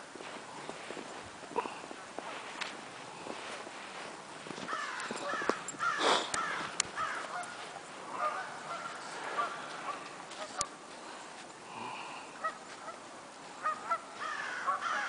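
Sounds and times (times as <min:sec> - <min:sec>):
geese honking: 0:04.6 - 0:10.8, 0:12.4 - 0:15.0
sharp clicks: 0:06.3 - 0:07.0.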